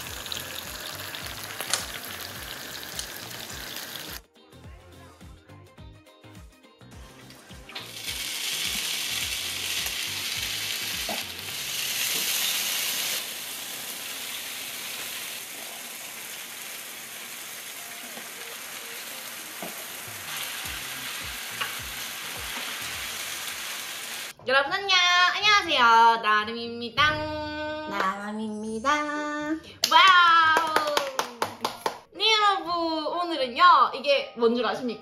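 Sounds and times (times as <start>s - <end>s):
noodles sizzling on grill pan: 0.0s - 4.2s, 7.8s - 24.3s.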